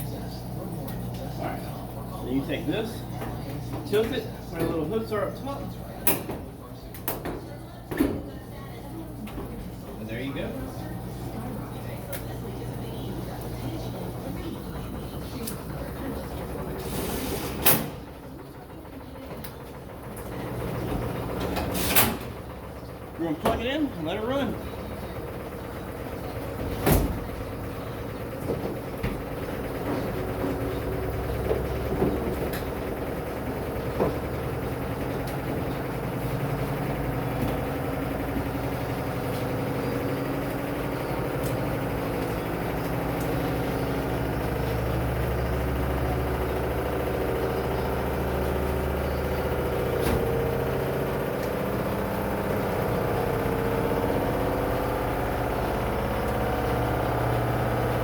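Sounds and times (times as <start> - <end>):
washing machine spinning hum: 0.0 - 58.0.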